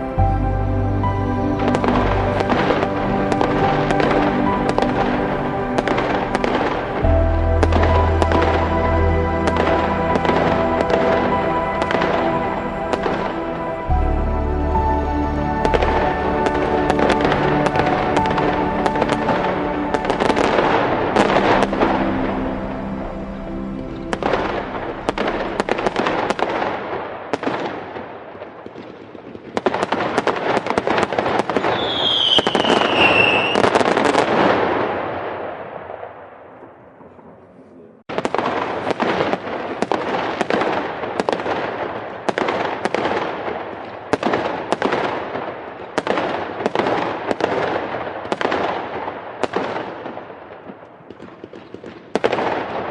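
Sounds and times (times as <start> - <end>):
falling firework whistle: 31.5 - 34.2
fireworks crackling and popping: 38.1 - 52.9.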